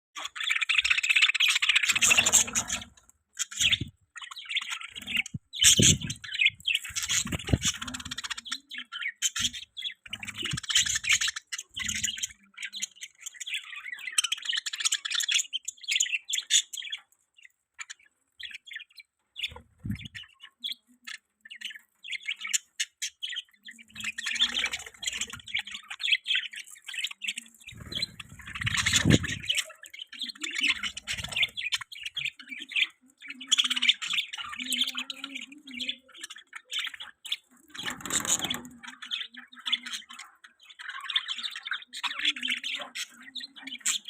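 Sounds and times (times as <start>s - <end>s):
bird squawk: 0.2s - 12.9s, 24.0s - 44.0s
budgerigars chirping and warbling: 0.2s - 44.0s.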